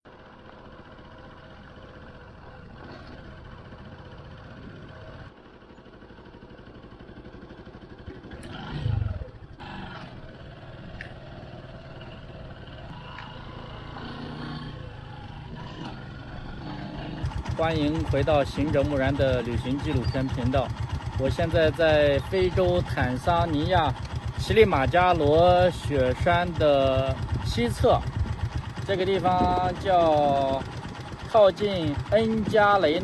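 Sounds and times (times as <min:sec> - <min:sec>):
motorcycle engine running: 0:00.1 - 0:33.0
vehicle passing with falling pitch: 0:08.4 - 0:17.2.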